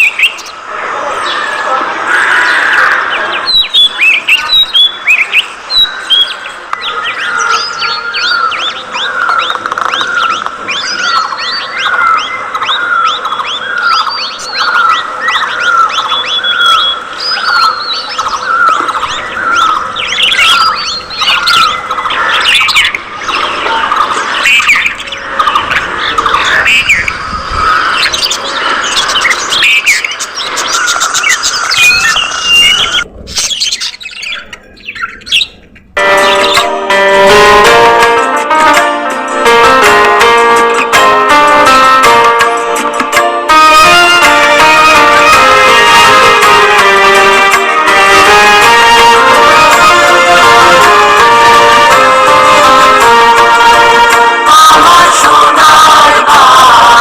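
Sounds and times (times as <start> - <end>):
budgerigars chirping and chattering: 1.2 - 36.7.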